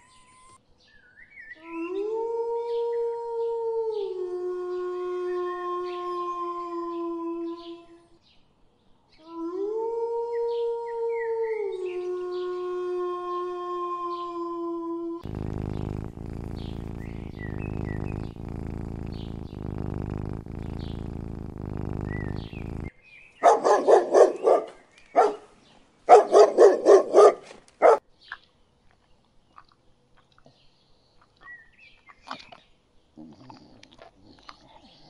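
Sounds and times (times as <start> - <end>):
cat purring: 15.2 - 22.9
dog barking: 23.4 - 25.5, 26.1 - 28.0.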